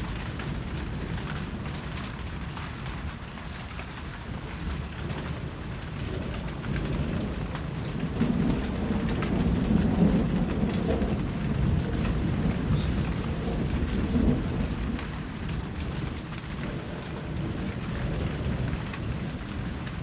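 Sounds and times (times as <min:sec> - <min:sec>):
low roll of thunder: 0:00.0 - 0:20.0
steady rain falling: 0:00.0 - 0:20.0.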